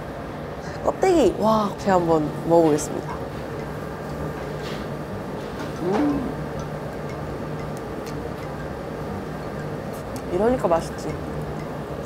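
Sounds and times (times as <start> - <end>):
steady low hum: 0.0 - 12.0
person humming mm: 5.8 - 6.4.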